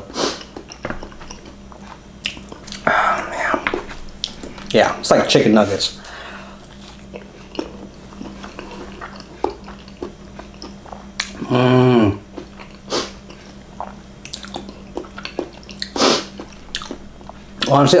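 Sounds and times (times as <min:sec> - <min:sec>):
breathy noise: 0:06.0 - 0:06.7
closed-mouth chewing: 0:06.6 - 0:11.5, 0:12.2 - 0:17.7
person humming: 0:11.4 - 0:12.2
wet mouth clicks and smacks: 0:13.8 - 0:17.0.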